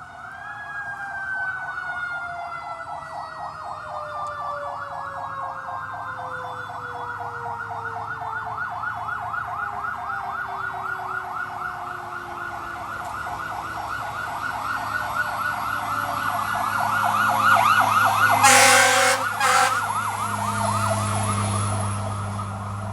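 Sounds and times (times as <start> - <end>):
electronic siren yelping: 13.6 - 21.6
loud horn blasts: 18.3 - 20.2.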